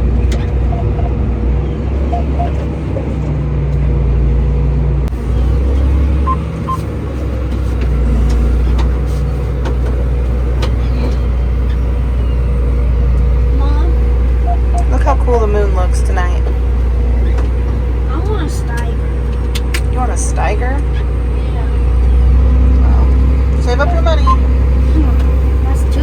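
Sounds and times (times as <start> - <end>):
tractor engine running: 0.0 - 26.0
short electronic beeps: 6.2 - 6.8, 14.4 - 15.0, 23.6 - 24.5.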